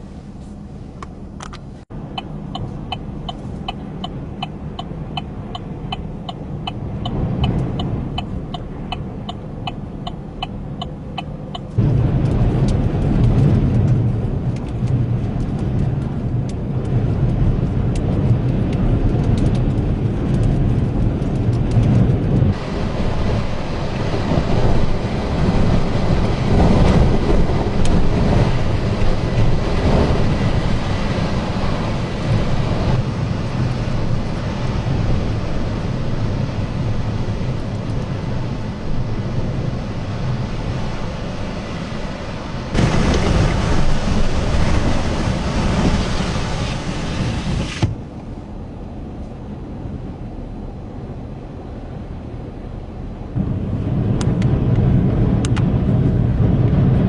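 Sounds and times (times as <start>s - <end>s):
wind buffeting microphone: 3.5s - 48.8s, 49.4s - 57.0s.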